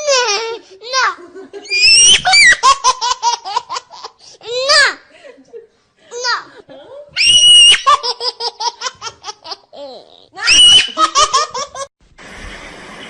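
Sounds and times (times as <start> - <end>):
high-pitched laughter: 0.0 - 3.7, 10.4 - 11.9.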